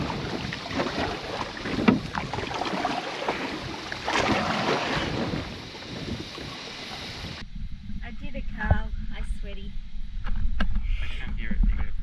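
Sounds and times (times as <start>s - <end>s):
paddle strokes in water: 0.0s - 7.4s
wind buffeting microphone: 0.0s - 12.0s.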